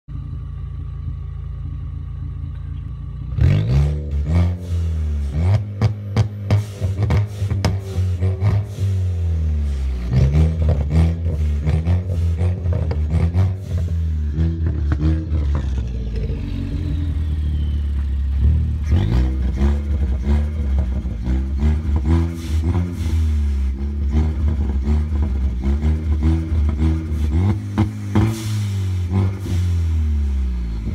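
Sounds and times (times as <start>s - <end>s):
car engine revving: 1.6s - 30.9s.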